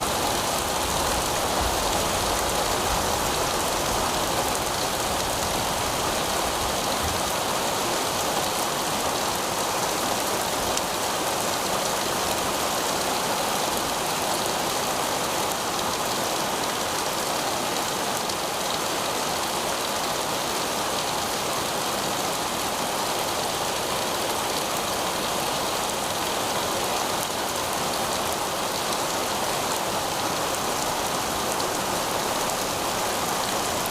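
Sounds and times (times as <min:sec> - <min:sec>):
heavy rain on pavement: 0:00.0 - 0:33.9.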